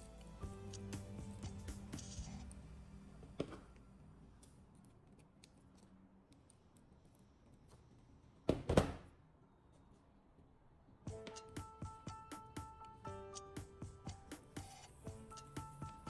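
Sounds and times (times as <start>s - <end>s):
faint background music: 0.0s - 4.6s, 11.1s - 16.0s.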